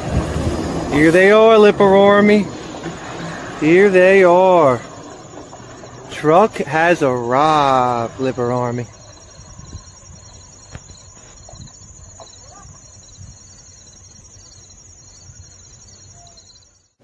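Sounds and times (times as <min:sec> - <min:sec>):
low outdoor rumble: 0:00.0 - 0:16.4
lower insect chirping: 0:01.0 - 0:17.0
fast high-pitched insect trill: 0:03.7 - 0:17.0.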